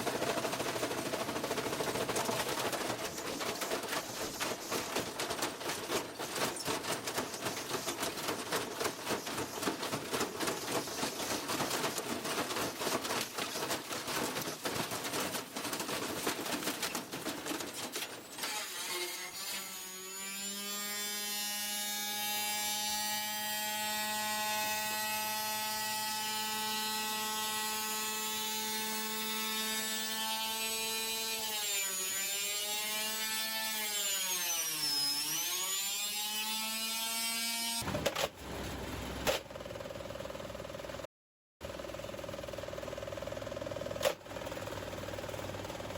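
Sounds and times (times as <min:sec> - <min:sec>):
washing machine rattling: 0:00.0 - 0:17.9.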